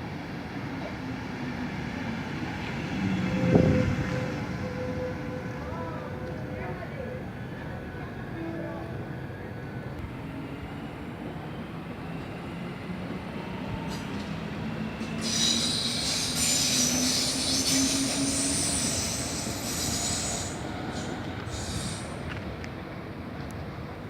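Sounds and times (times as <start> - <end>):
train wheels squealing: 2.8 - 6.0, 13.4 - 22.3.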